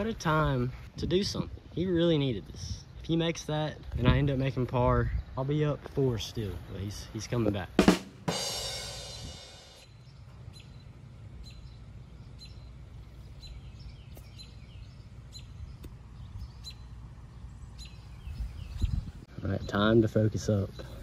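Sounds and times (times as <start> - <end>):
small bird chirping: 9.4 - 21.0.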